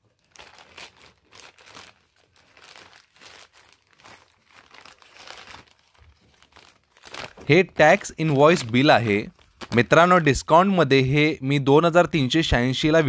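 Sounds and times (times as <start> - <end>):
packaging bag crinkling: 0.0 - 10.0.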